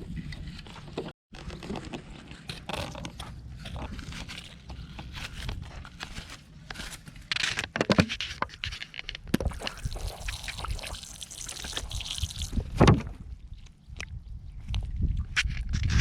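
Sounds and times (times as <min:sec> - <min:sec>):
water splashing and trickling: 0:09.4 - 0:13.6.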